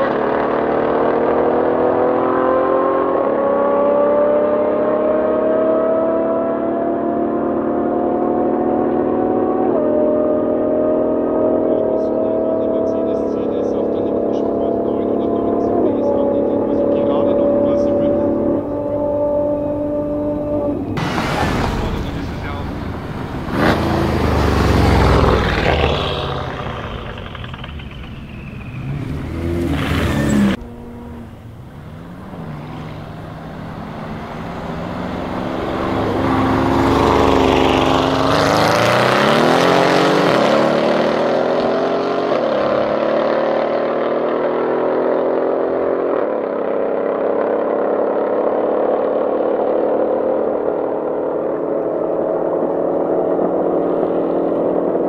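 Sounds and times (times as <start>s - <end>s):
car engine at full throttle: 0.0s - 55.0s
loud sweep: 17.0s - 42.6s.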